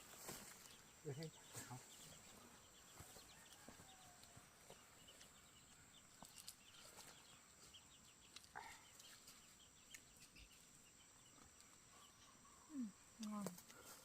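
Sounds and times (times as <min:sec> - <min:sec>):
small scattered chirps: 0:06.1 - 0:12.3.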